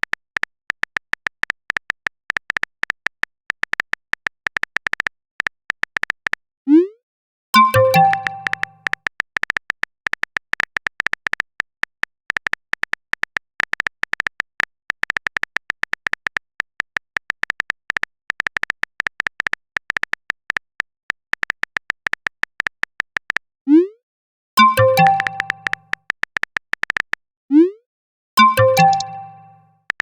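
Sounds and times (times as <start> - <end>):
message chime: 7.6 - 8.9, 24.6 - 25.8, 28.4 - 29.7
keyboard typing clicks: 7.6 - 20.6, 24.6 - 27.2, 28.4 - 30.0.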